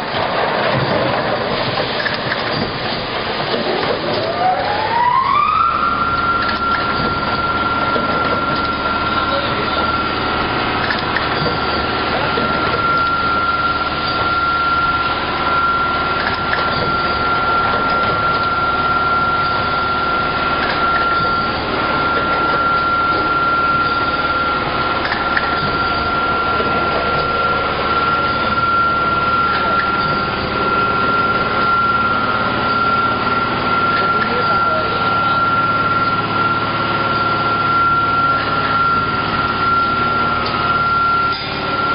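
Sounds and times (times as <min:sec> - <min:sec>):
dense clatter of clicks: 0:00.0 - 0:04.4, 0:06.0 - 0:34.4
machinery motor whine: 0:00.0 - 0:41.9.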